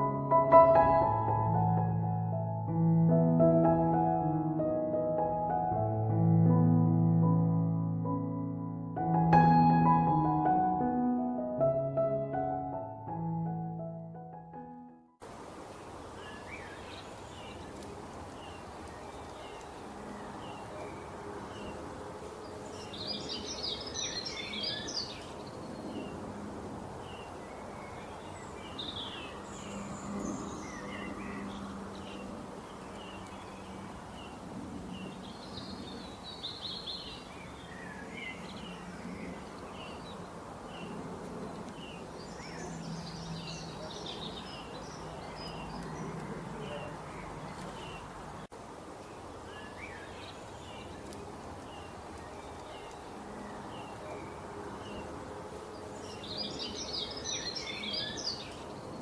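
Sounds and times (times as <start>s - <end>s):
birds chirping: 27.0s - 48.5s.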